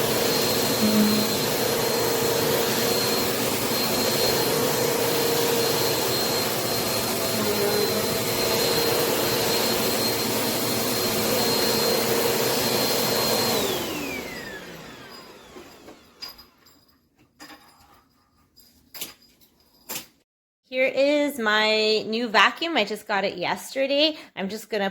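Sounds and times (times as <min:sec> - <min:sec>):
vacuum cleaner whining: 0:00.0 - 0:16.8.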